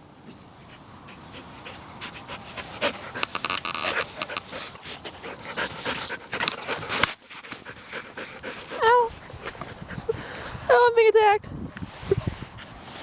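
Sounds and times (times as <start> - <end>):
dog panting: 0.3 - 10.7
clicks and rustles: 2.8 - 10.6.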